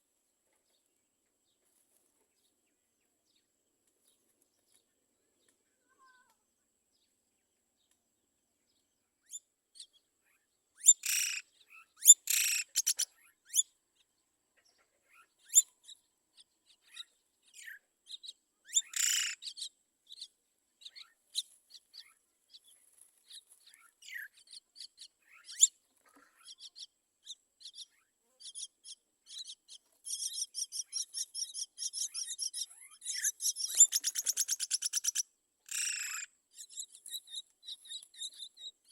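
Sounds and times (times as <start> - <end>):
bird chirps: 8.7 - 38.9
birds squawking harshly: 18.8 - 19.4, 30.1 - 36.3.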